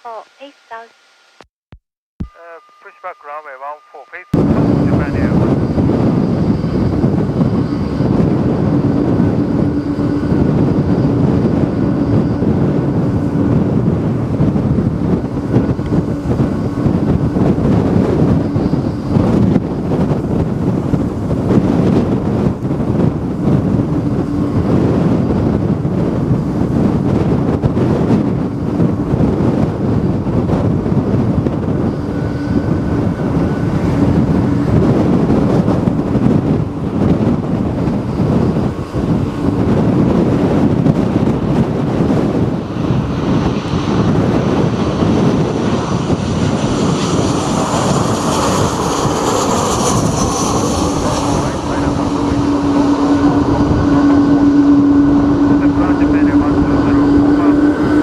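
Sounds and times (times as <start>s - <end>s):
strong wind buffeting microphone: 4.3s - 58.0s.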